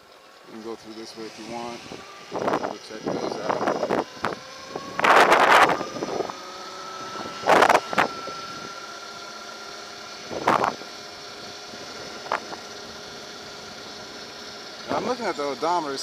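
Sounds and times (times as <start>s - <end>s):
electric motor whine: 0.0s - 16.0s
wind gusts on microphone: 1.1s - 6.4s, 7.1s - 8.7s.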